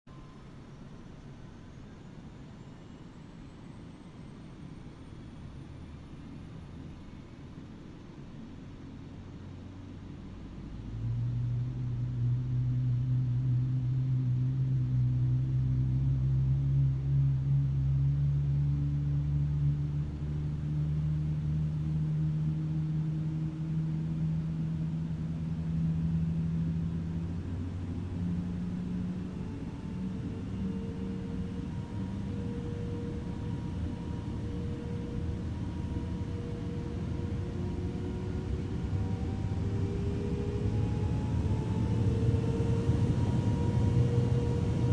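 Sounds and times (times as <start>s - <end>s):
jet engine spooling up: 23.6s - 44.9s.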